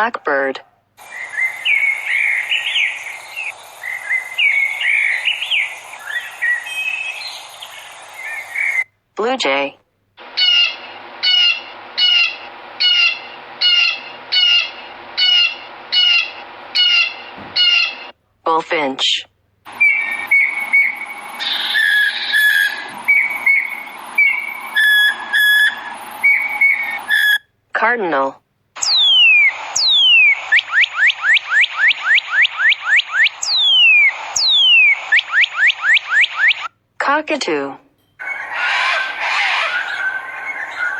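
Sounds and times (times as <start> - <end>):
steady outdoor hiss: 0.8 - 18.1, 19.5 - 27.7, 28.6 - 35.9, 38.2 - 40.9
blue jay calling: 1.0 - 8.8, 10.2 - 18.1, 19.7 - 27.4, 28.8 - 36.7, 38.2 - 40.9
bird singing whistles: 1.0 - 8.9, 19.7 - 27.4, 28.8 - 36.2, 39.6 - 40.9.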